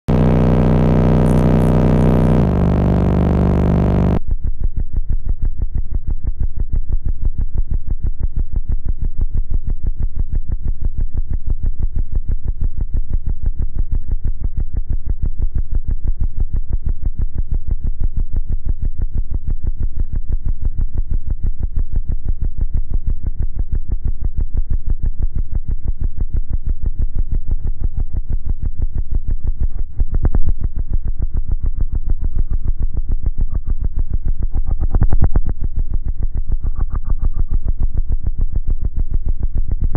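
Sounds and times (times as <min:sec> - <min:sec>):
deep synthesizer bass music: 0:00.0 - 0:04.2.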